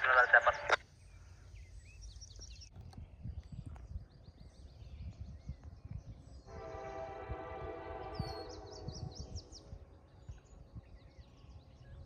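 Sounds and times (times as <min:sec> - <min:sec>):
low wind rumble: 0:00.0 - 0:12.0
distant locomotive air horn: 0:06.5 - 0:09.7.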